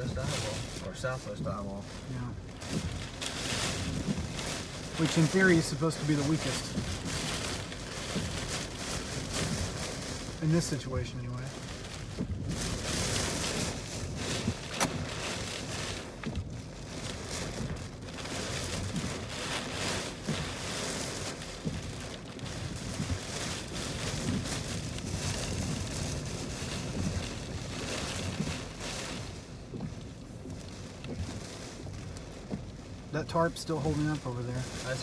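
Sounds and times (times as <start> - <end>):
driving rain: 0.0 - 35.0
hurricane wind: 0.0 - 35.0.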